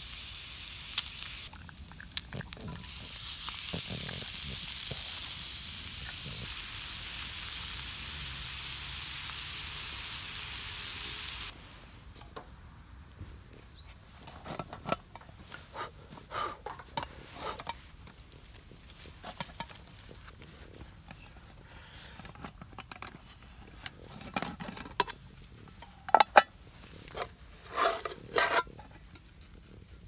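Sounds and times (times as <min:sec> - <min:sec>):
food sizzling in a pan: 0:00.0 - 0:01.6, 0:02.6 - 0:11.8.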